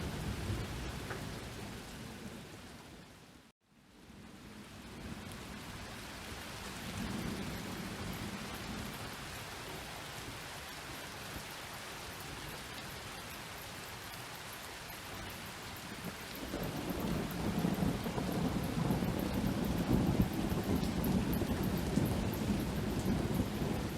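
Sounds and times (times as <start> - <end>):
rain hissing: 0.0 - 23.9
distant thunder rumble: 15.9 - 23.9.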